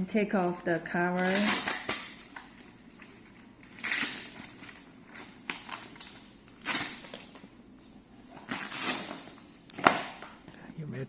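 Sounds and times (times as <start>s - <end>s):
plastic cover scraping: 1.1s - 7.5s.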